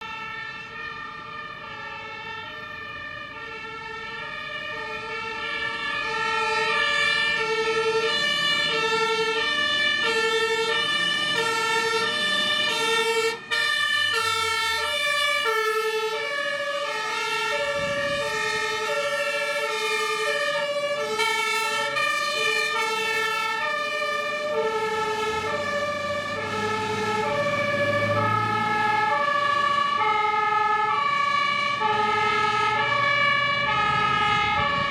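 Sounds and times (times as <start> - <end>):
fire engine two-tone siren: 0.0 - 34.9
truck engine rumble: 0.1 - 34.9.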